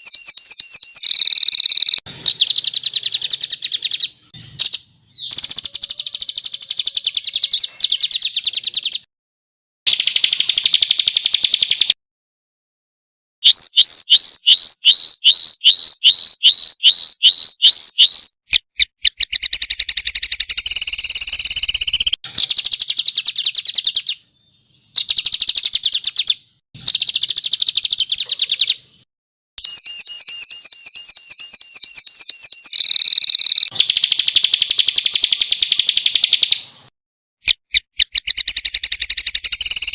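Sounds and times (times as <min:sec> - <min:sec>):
songbirds trilling: 0:00.0 - 0:09.1, 0:13.4 - 0:18.4.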